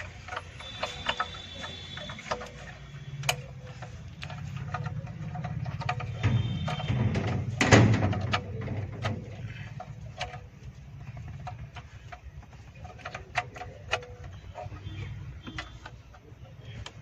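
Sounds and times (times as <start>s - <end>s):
clicks and knocks: 0.0s - 17.0s
scraping clatter: 0.0s - 17.0s.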